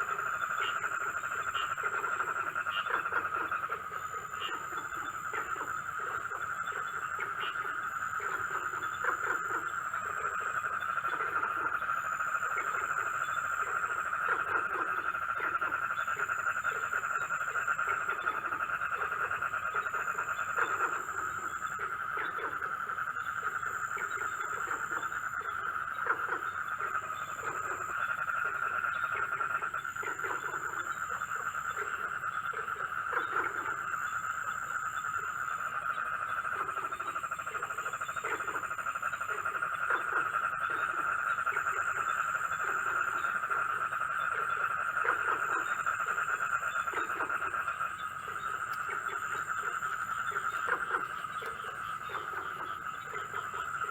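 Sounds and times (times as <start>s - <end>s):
frogs croaking: 0.0s - 53.9s.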